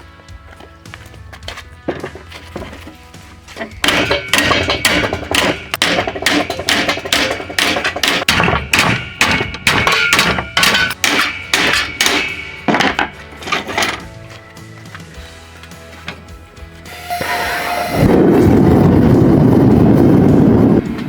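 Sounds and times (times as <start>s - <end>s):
hammer blows on steel: 3.8s - 13.1s, 16.9s - 18.6s.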